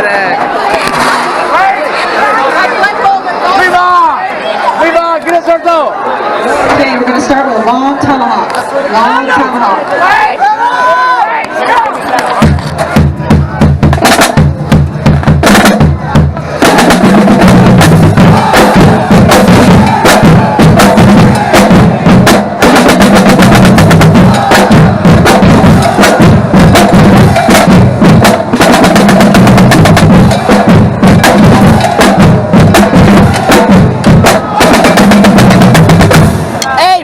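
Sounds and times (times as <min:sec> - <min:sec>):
marching drumline playing: 0:12.2 - 0:37.0.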